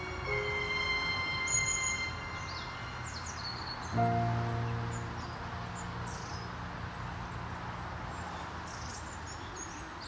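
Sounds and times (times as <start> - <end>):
background music low note: 0.0 - 7.0
outdoor hiss: 0.0 - 10.0.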